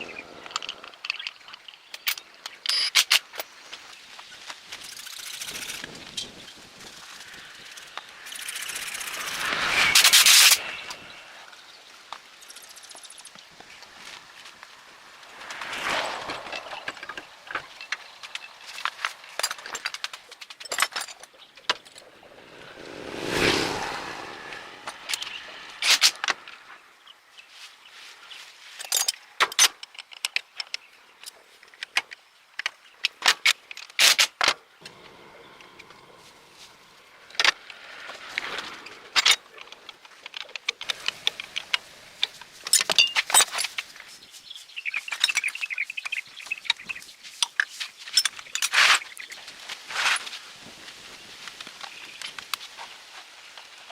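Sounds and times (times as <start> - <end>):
metal tools clinking and rattling: 0.5 - 3.5, 16.2 - 22.1, 28.8 - 30.3, 40.4 - 43.8, 47.4 - 49.2
rush of noise: 5.2 - 12.6, 14.0 - 18.1, 21.9 - 26.9.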